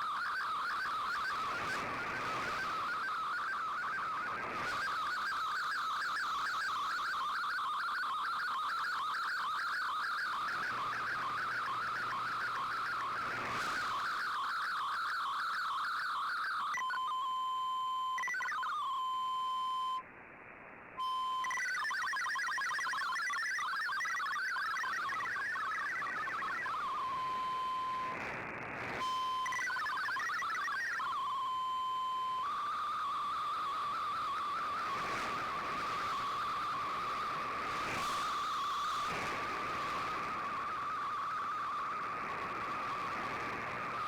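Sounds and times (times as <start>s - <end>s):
warbling data signal tones: 0.0s - 20.0s, 21.0s - 44.0s
radio hiss: 10.0s - 15.4s, 24.2s - 31.2s, 32.3s - 44.0s.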